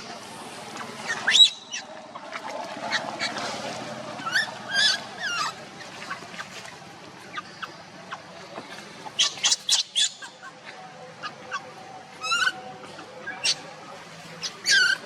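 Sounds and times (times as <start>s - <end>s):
baby monkey squeaking: 1.2s - 1.8s, 4.2s - 5.6s, 9.2s - 10.4s, 12.2s - 12.6s, 13.2s - 13.6s, 14.4s - 15.0s.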